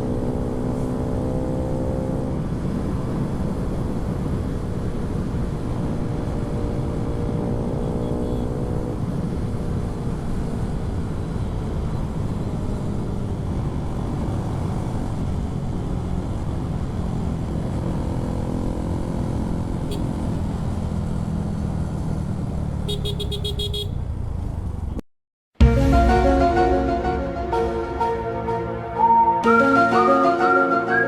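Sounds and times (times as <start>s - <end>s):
motorcycle engine running: 17.3s - 25.0s.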